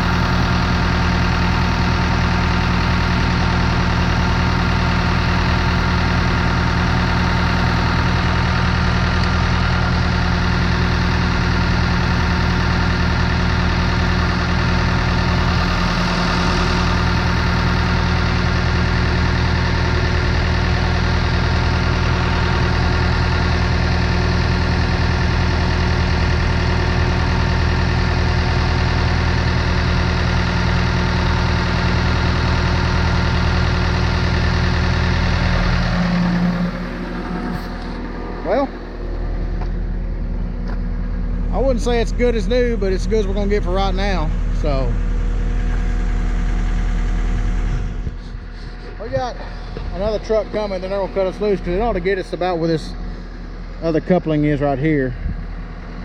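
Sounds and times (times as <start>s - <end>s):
engine humming: 0.0s - 56.0s.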